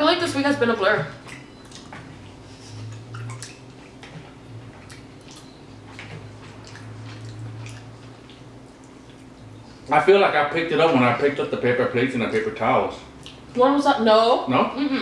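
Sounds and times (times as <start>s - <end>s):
people chewing food: 0.9s - 10.2s, 12.2s - 13.6s
wet mouth smacks and clicks: 13.2s - 13.5s.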